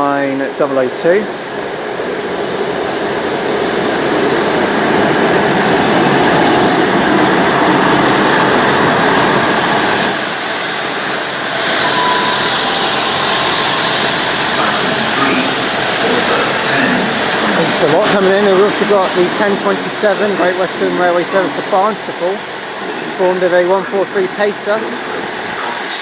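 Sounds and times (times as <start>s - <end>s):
diesel train engine and wheels: 0.0s - 26.0s
faint thin high tone: 11.6s - 15.6s.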